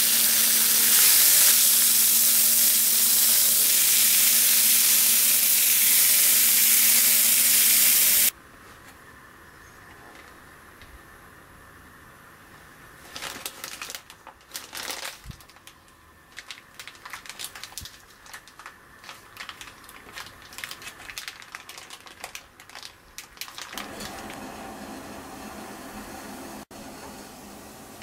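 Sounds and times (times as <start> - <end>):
plastic bag crinkling: 13.0 - 24.4.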